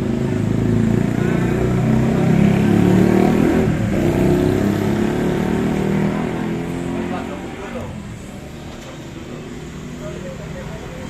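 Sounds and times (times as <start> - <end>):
motor vehicle engine revving: 0.0 - 8.3.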